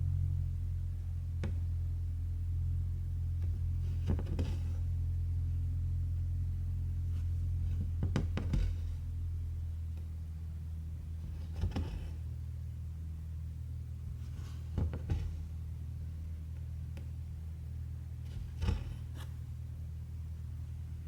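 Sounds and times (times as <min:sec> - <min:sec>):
low hum: 0:00.0 - 0:21.0
needle and thread through cloth: 0:03.4 - 0:04.9, 0:11.1 - 0:12.2, 0:18.2 - 0:19.4.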